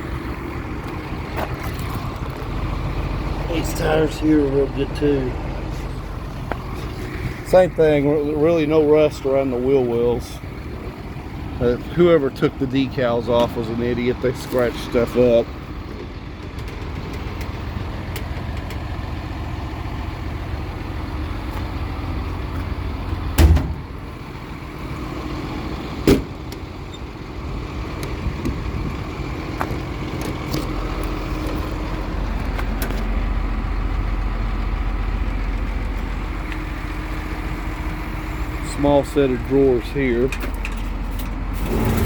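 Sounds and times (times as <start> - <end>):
engine idling: 0.0 - 42.0
loud thumps: 23.4 - 23.9.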